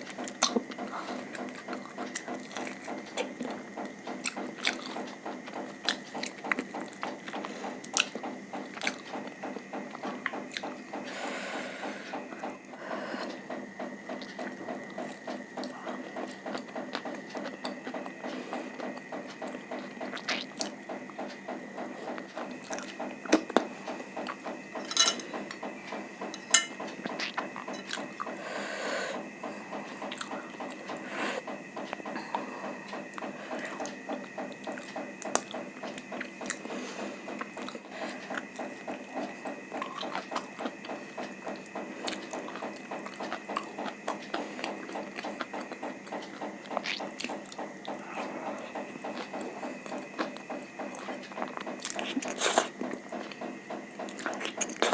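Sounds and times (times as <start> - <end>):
chewing with mouth clicks: 0.0 - 9.3, 14.2 - 24.4, 26.8 - 28.4, 32.0 - 54.9.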